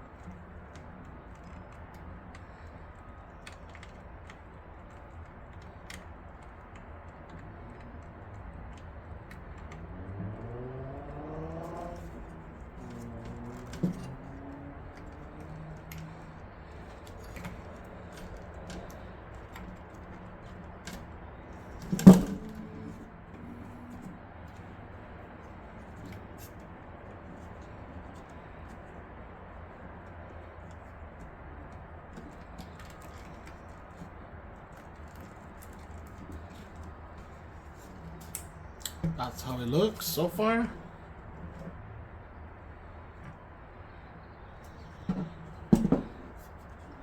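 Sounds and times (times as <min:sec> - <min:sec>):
clicks and rattles of computer parts: 0:00.0 - 0:41.8.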